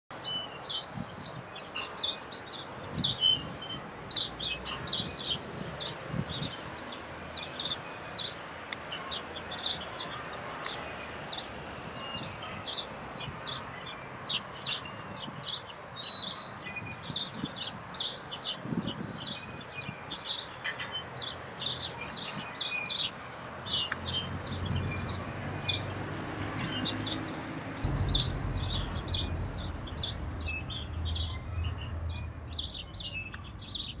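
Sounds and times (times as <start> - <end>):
birds chirping: 0.1 - 34.0
low hum: 27.6 - 33.8.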